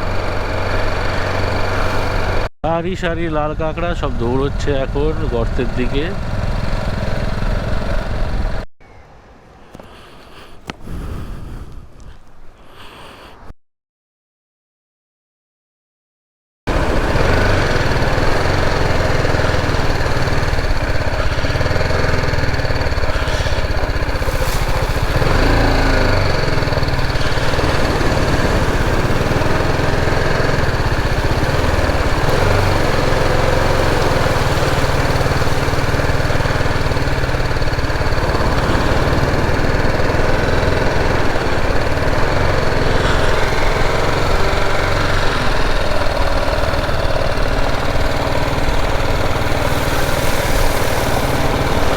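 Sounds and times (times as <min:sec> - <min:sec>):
motorcycle engine running: 0:00.0 - 0:02.5, 0:03.2 - 0:08.7, 0:16.7 - 0:51.9.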